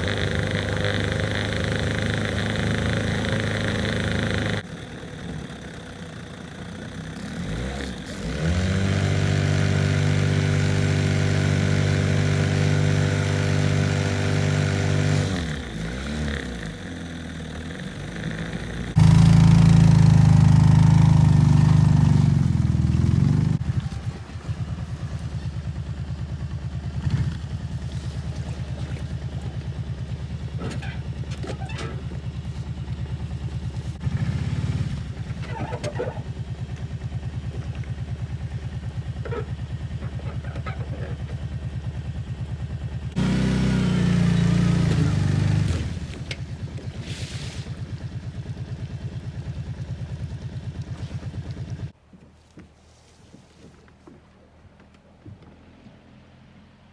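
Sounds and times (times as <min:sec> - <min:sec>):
outboard motor idling and revving: 0:00.0 - 0:52.0.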